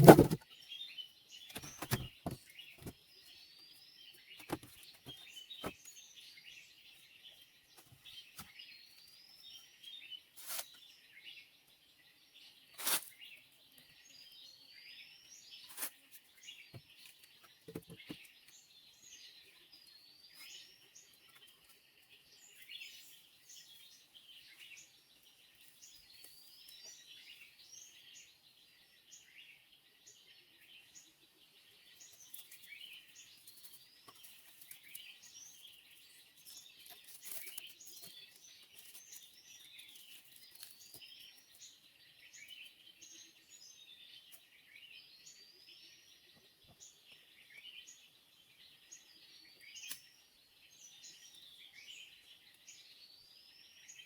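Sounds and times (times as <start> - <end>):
sharp knocks: 0.0 - 0.4
birds chirping: 0.0 - 54.0.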